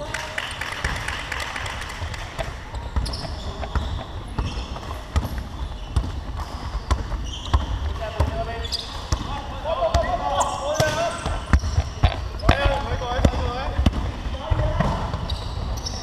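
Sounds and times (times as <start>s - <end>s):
basketball bouncing on court: 0.8s - 16.0s
shoe squeaks: 2.4s - 13.7s, 15.0s - 16.0s.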